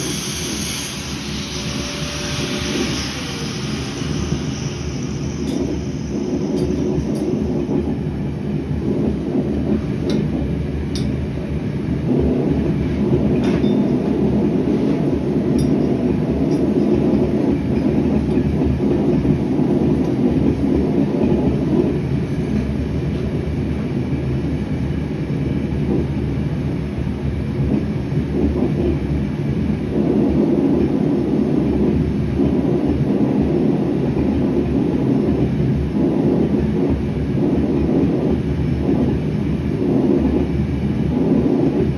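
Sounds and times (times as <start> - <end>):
gas forge burner roaring: 0.0 - 9.9.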